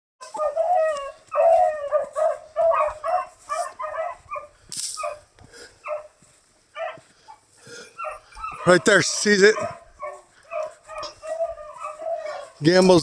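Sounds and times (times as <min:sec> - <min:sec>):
dog whining and yipping: 0:00.2 - 0:05.2, 0:08.0 - 0:08.8, 0:09.6 - 0:12.6.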